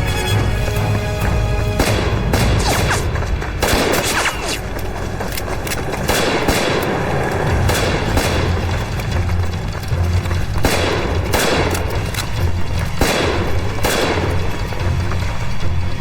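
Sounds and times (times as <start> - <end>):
background music score: 0.0 - 16.0
rifle and machine-gun shots: 1.7 - 15.4.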